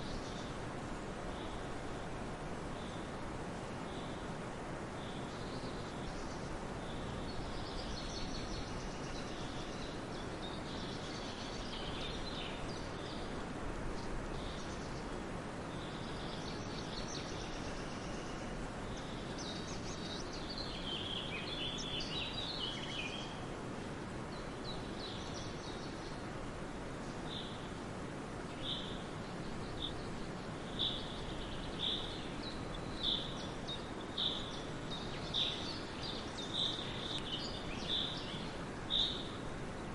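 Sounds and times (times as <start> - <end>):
steady background hiss: 0.0 - 39.9
small birds chirping: 4.9 - 39.9.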